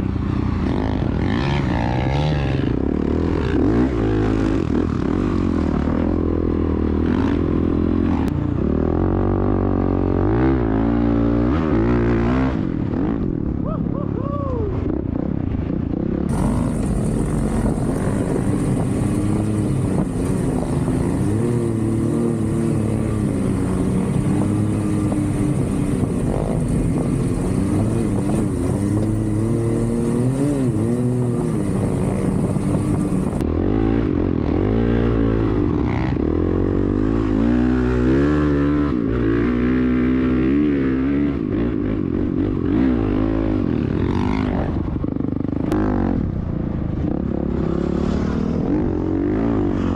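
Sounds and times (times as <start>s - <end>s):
off-road vehicle engine revving: 16.3s - 41.8s.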